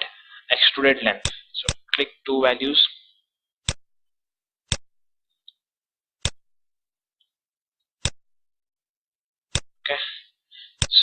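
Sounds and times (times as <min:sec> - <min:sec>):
computer mouse clicks: 0:06.2 - 0:06.4.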